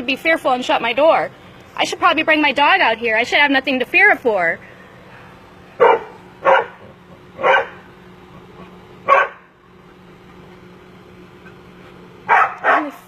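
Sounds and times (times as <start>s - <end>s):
dog barking: 5.8s - 6.8s, 7.4s - 7.8s, 9.1s - 9.4s, 12.3s - 13.0s.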